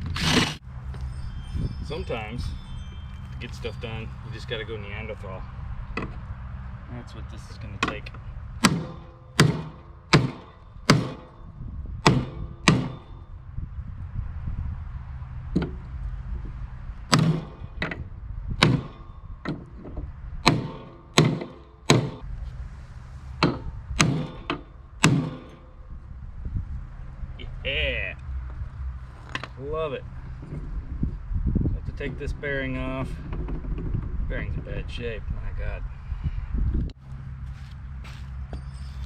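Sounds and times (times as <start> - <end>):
low hum: 0.0 - 39.0
hammer striking steel: 7.8 - 13.4, 17.1 - 18.0, 18.6 - 19.6, 20.4 - 22.3, 23.4 - 25.8.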